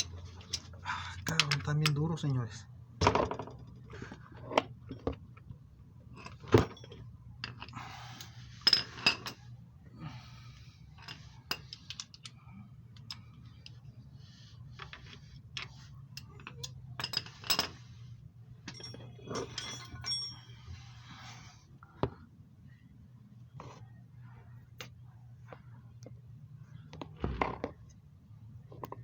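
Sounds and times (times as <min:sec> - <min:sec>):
low steady hum: 0:00.0 - 0:29.0
metal hand tools clinking: 0:18.7 - 0:20.6.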